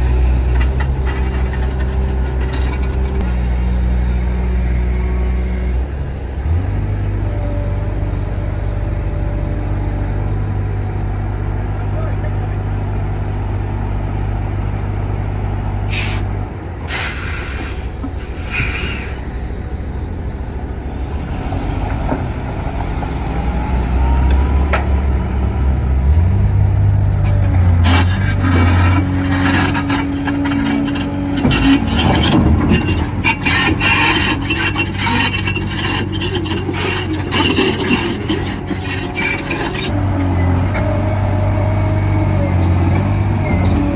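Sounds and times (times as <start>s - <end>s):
metallic clanking and rattling: 0.0s - 3.2s
diesel engine running: 0.0s - 43.9s
air hiss: 16.9s - 19.2s.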